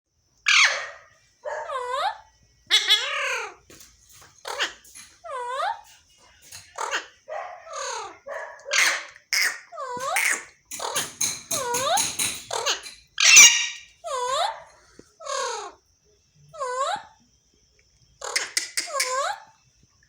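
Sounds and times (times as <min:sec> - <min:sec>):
parrots squawking: 0:00.5 - 0:15.8, 0:16.5 - 0:17.2, 0:18.2 - 0:19.6.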